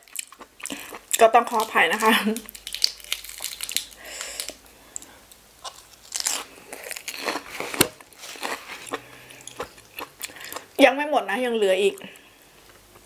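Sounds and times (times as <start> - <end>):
crunchy chewing of lettuce: 0.0 - 4.6, 5.6 - 10.7.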